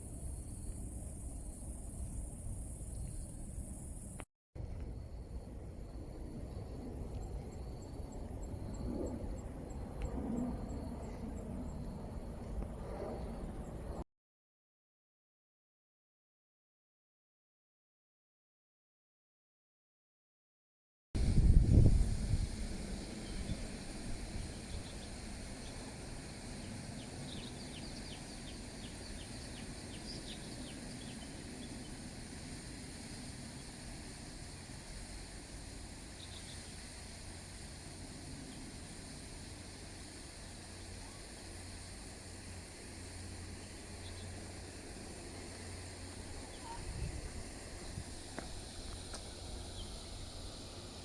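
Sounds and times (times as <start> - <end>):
low wind rumble on microphone: 0.0 - 14.0, 21.2 - 51.0
low outdoor rush: 21.2 - 51.0.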